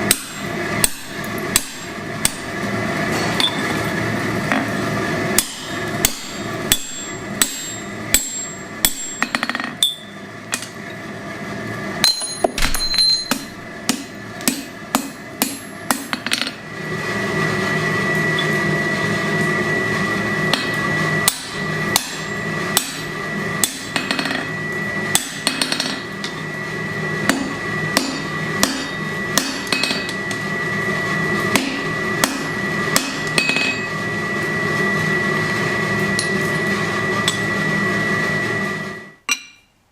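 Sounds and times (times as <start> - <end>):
hammer striking steel on anvil: 0.0 - 2.5, 5.4 - 10.8, 12.0 - 16.6, 20.5 - 24.5, 25.1 - 26.4, 27.2 - 30.2, 31.5 - 33.9, 39.3 - 39.7
steady hum: 0.0 - 39.6.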